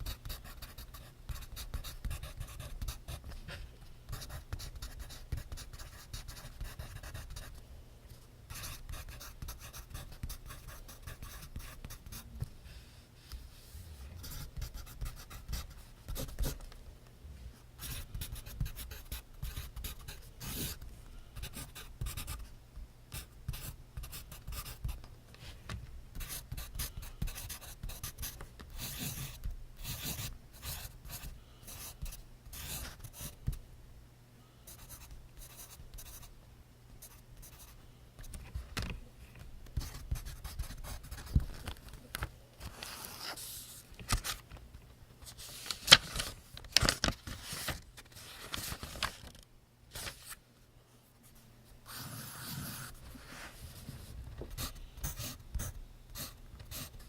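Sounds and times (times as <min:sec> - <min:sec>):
pencil writing on paper: 0:00.0 - 0:03.2, 0:04.1 - 0:07.5, 0:17.8 - 0:20.8, 0:23.2 - 0:25.0, 0:26.2 - 0:33.4, 0:51.9 - 0:53.0, 0:54.6 - 0:57.0.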